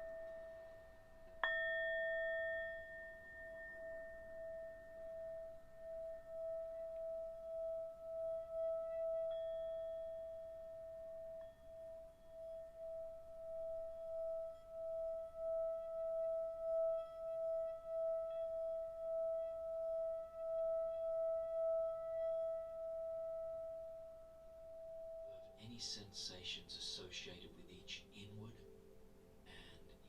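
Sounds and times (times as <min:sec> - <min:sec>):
singing bowl ringing: 0:00.0 - 0:27.0.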